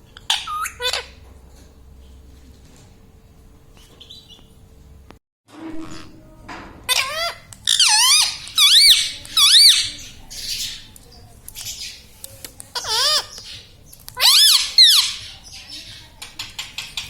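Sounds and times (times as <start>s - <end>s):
parakeet squawking: 0.2s - 1.2s, 6.9s - 10.9s, 12.7s - 17.0s.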